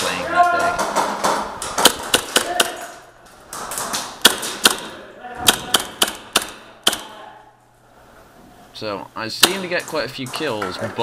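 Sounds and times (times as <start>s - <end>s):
airsoft gun shots: 0.9s - 2.9s, 3.8s - 7.2s.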